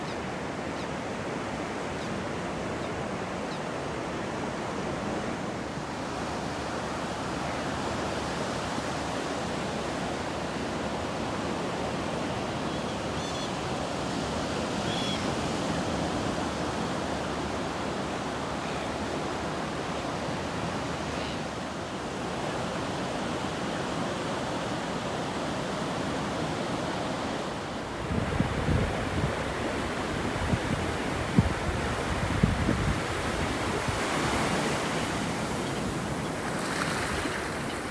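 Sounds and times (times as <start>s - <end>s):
wind: 0.0s - 37.9s
ocean surf: 24.3s - 37.9s
wind buffeting microphone: 28.0s - 37.9s.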